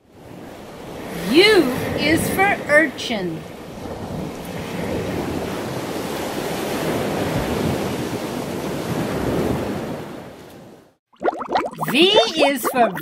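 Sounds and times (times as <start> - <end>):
rushing seawater: 0.0 - 10.3.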